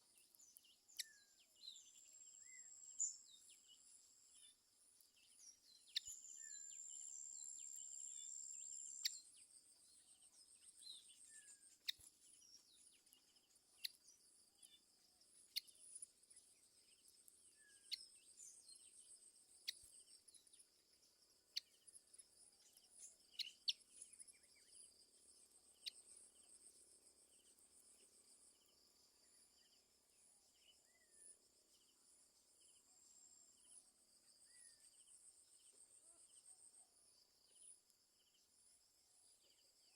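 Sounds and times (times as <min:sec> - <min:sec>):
bird chirps: 0:00.0 - 0:26.7.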